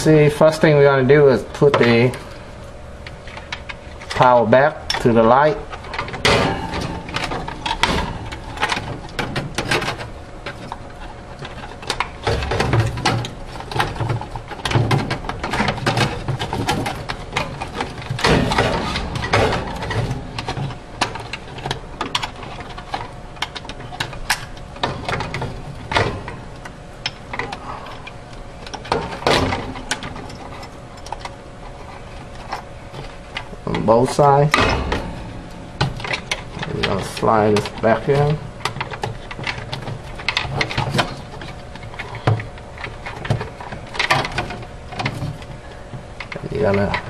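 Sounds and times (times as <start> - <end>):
faint steady hum: 0.0 - 47.0
clicks and clatter of handled parts: 5.7 - 47.0.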